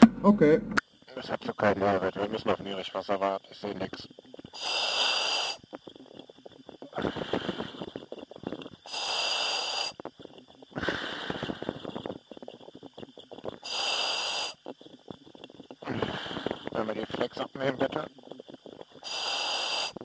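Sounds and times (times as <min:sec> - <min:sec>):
diver breathing through regulator: 0:04.5 - 0:05.7, 0:06.9 - 0:08.1, 0:08.8 - 0:10.1, 0:10.7 - 0:12.4, 0:13.5 - 0:14.7, 0:15.8 - 0:16.8, 0:19.0 - 0:20.0.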